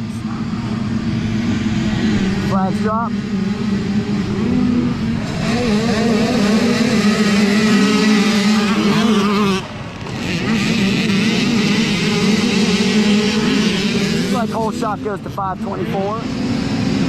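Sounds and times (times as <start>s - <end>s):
mini dirt bikes revving: 0.0s - 17.0s.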